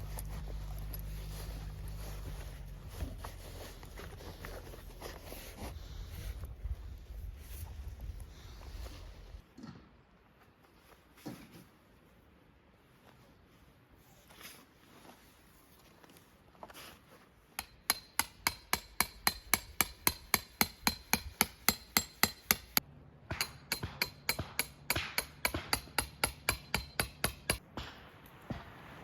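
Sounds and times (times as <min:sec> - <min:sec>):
hammer striking tent pegs: 0:17.6 - 0:27.6.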